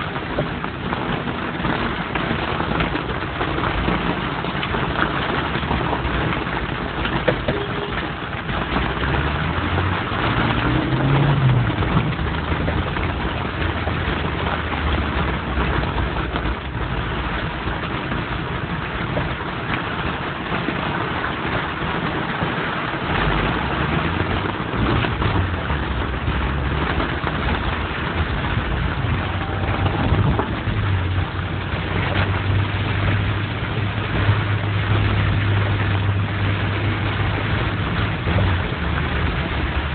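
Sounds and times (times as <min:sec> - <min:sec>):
rain hiss: 0:00.0 - 0:39.9
tyres on wet road: 0:00.0 - 0:39.9
vehicle engines humming: 0:00.0 - 0:39.9.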